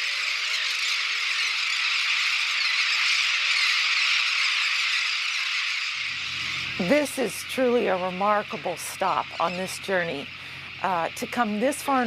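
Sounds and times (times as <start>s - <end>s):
seabird colony calling: 0.0s - 12.0s.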